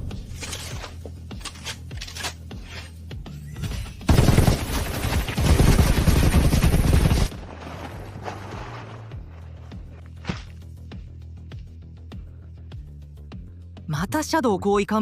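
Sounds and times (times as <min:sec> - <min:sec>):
background music: 0:00.0 - 0:15.0
automatic gunfire: 0:04.1 - 0:07.3.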